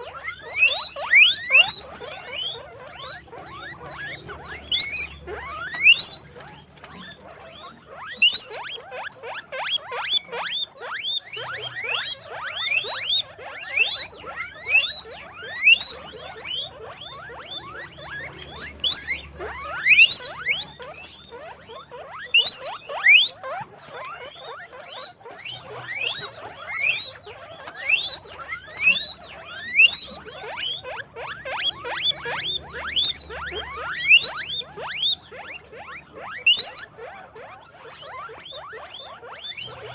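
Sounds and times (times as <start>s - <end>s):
guinea pigs squeaking: 0.0s - 39.9s.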